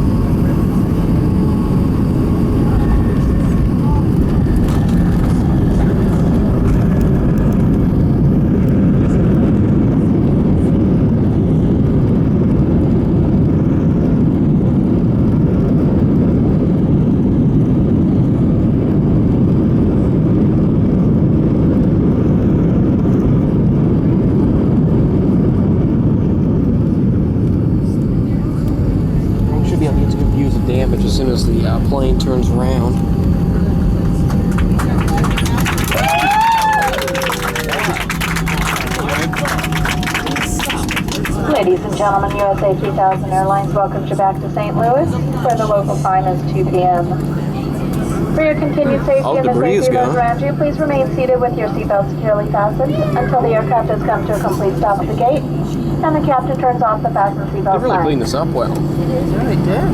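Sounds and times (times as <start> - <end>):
airplane cabin rumble: 0.0 - 59.9.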